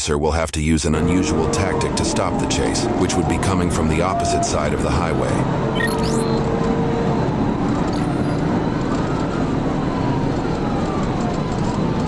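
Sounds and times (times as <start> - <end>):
police siren wailing: 1.1 - 5.0, 5.6 - 12.0
car road and engine noise: 6.4 - 12.0.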